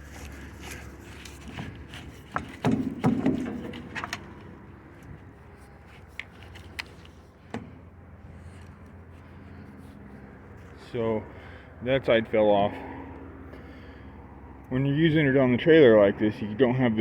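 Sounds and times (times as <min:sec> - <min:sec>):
heavy thuds and scraping: 0:00.0 - 0:08.7
unloader knocks and clicks: 0:01.2 - 0:05.3, 0:06.1 - 0:07.9.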